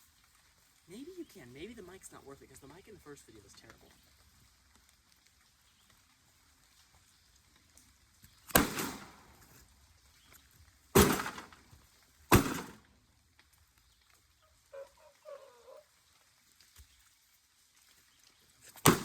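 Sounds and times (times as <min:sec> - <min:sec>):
heavy blows on metal casing: 0:11.0 - 0:11.6, 0:12.3 - 0:12.8.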